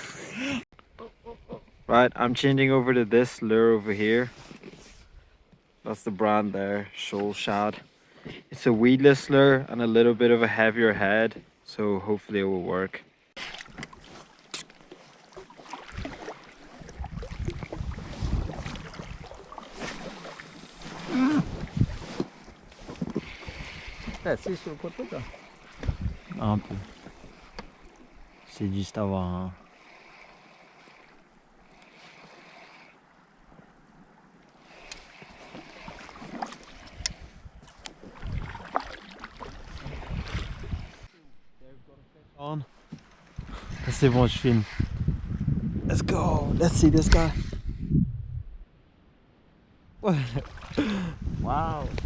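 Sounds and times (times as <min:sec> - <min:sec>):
water lapping around a kayak: 0:13.0 - 0:41.6, 0:42.7 - 0:45.6, 0:49.6 - 0:52.0
wind buffeting microphone: 0:16.8 - 0:19.5, 0:20.9 - 0:22.2, 0:22.9 - 0:27.0, 0:36.8 - 0:38.7, 0:39.6 - 0:41.1, 0:43.3 - 0:48.7, 0:49.9 - 0:52.0.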